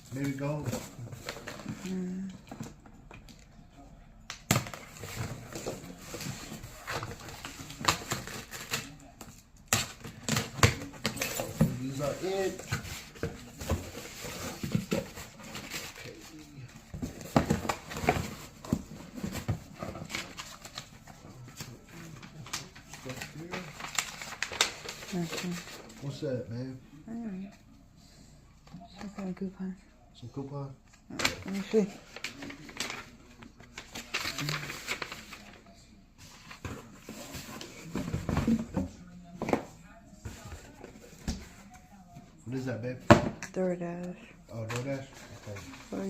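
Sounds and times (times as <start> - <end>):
paper and packaging rustling: 0.0 - 3.4, 4.5 - 26.4, 30.9 - 43.1, 44.5 - 46.0.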